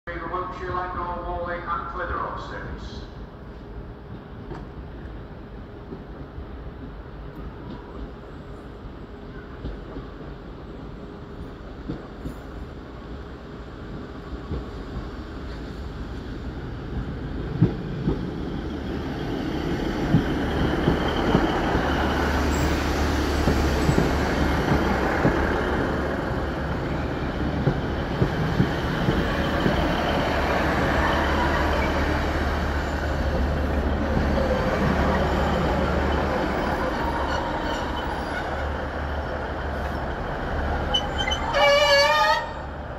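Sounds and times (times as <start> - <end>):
diesel train engine drone: 0.1 - 42.9
faint high wheel squeal: 34.4 - 38.7, 40.8 - 42.4.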